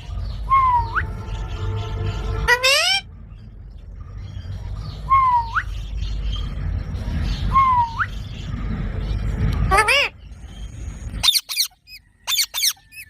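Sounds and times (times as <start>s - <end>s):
parrot whistling calls: 11.2s - 13.0s.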